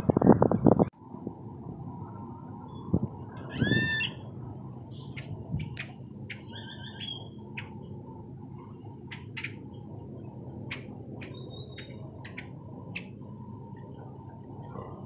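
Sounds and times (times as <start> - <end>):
birds chirping: 5.1 - 7.9.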